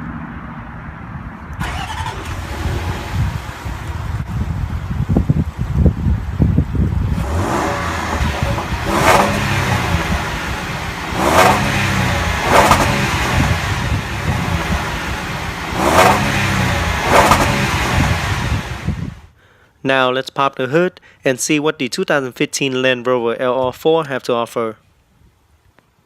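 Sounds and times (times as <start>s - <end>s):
car engine idling and revving: 0.0s - 19.3s.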